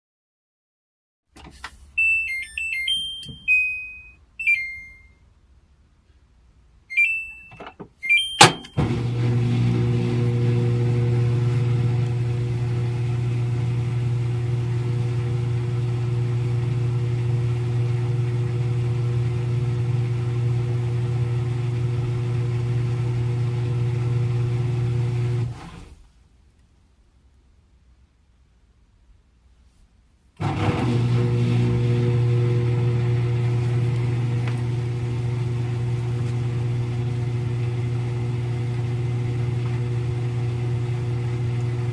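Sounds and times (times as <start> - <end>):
electronic control panel beeps: 2.0 - 5.2, 6.9 - 8.8
washing machine click: 6.9 - 8.8
washing machine motor humming: 6.9 - 25.9, 30.4 - 41.9.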